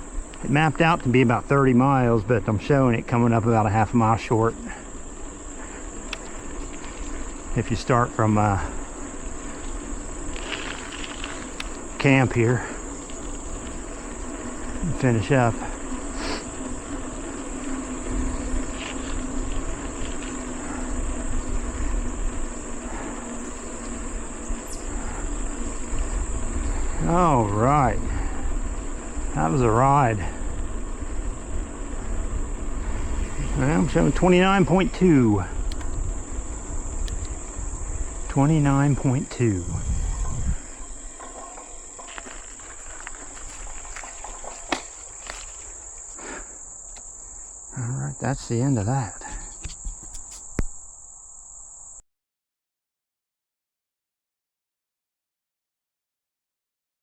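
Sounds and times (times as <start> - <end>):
bike tyres rolling: 0.0 - 47.8
high insect drone: 0.0 - 52.0
wind rumble on microphone: 5.9 - 45.6.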